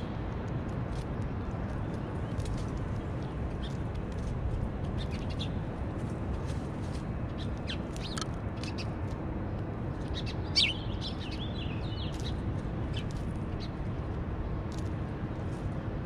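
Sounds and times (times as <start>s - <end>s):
low background noise: 0.0s - 16.0s
small birds chirping: 0.9s - 5.7s, 7.2s - 9.2s, 10.0s - 15.6s.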